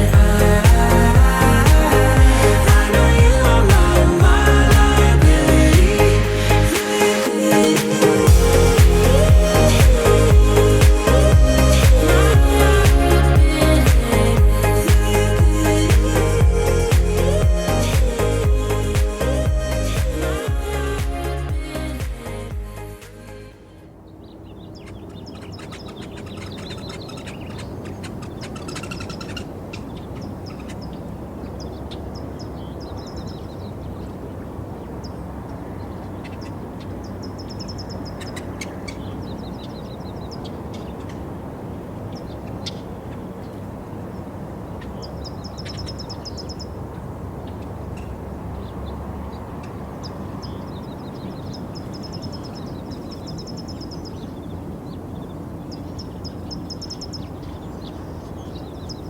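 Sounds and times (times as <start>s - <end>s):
low background rumble: 0.0s - 6.8s, 8.3s - 23.8s
small birds chirping: 23.9s - 59.0s.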